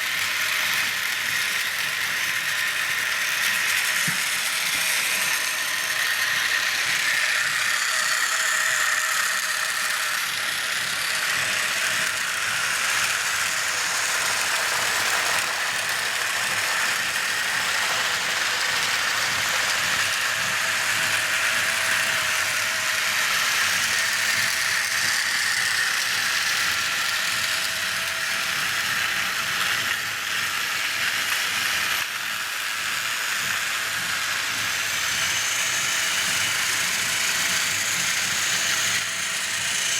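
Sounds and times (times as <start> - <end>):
toy train motor whine: 0.0 - 39.9.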